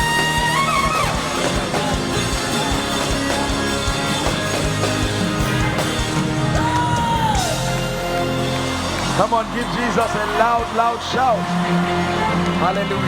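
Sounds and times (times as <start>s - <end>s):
long held high note: 0.0s - 4.7s
steady drum beat: 0.0s - 13.0s
worship band playing: 0.0s - 13.0s.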